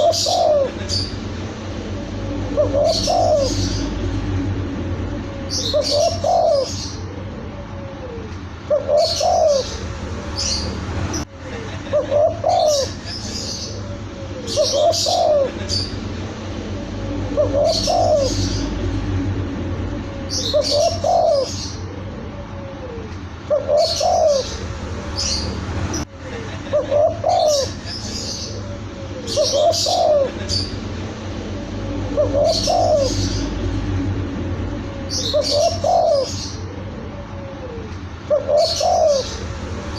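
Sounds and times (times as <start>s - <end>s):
dove cooing: 0.0s - 10.6s, 11.9s - 13.0s, 13.6s - 19.6s, 20.2s - 25.4s, 26.7s - 27.8s, 28.4s - 34.3s, 35.1s - 39.4s
steady low hum: 0.0s - 39.9s.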